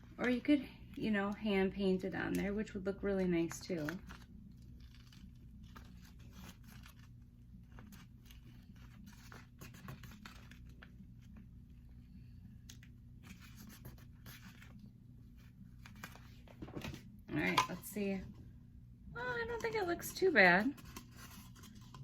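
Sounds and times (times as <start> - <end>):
low room hum: 0.0 - 22.0
vinyl mask scratching and crinkling: 3.6 - 11.6.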